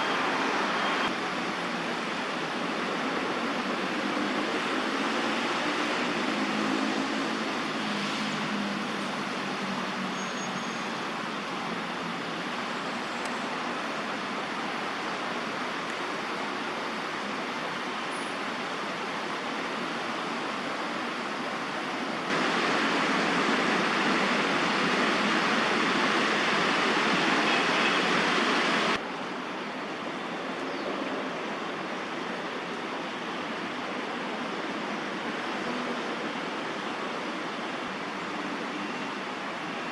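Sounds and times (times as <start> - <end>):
road traffic noise: 0.0 - 39.9.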